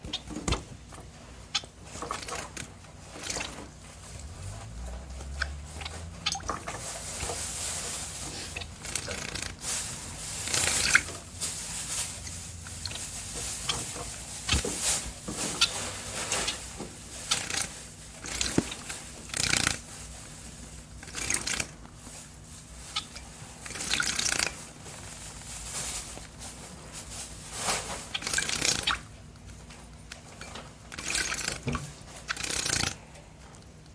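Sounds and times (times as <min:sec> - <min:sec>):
birds splashing in water: 0:01.5 - 0:11.3, 0:22.9 - 0:24.6, 0:28.1 - 0:29.1
wings fluttering: 0:01.5 - 0:29.1, 0:31.0 - 0:33.0.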